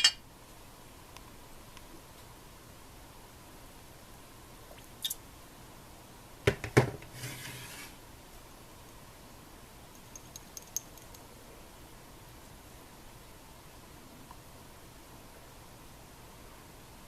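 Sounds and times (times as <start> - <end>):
short scrape: 7.1 - 8.0
small metallic ticks: 9.9 - 11.2.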